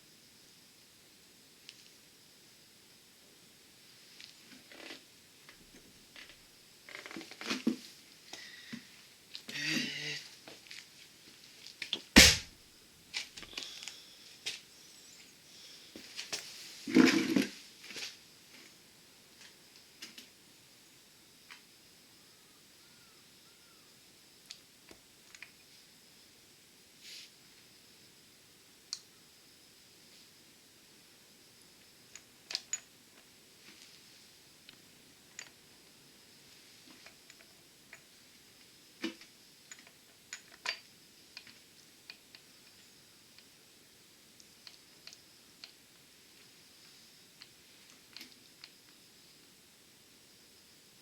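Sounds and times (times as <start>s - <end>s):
faint high hum: 7.9s - 10.6s
sharp metallic knock: 12.2s - 12.5s
small clicks of tools: 24.5s - 25.6s, 39.0s - 43.5s, 44.4s - 45.8s, 47.4s - 49.0s.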